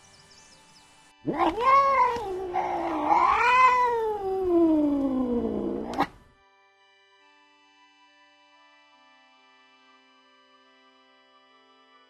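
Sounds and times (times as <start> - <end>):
cat yowling: 1.3 - 6.1.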